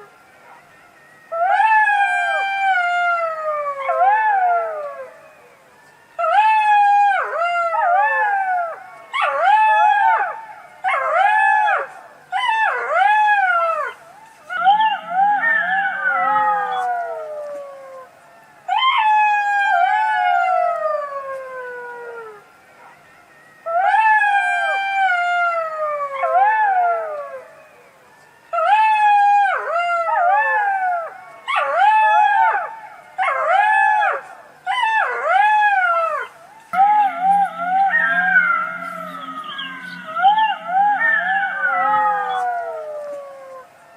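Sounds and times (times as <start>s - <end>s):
fox yelping and wailing: 6.2s - 17.7s, 28.6s - 43.6s.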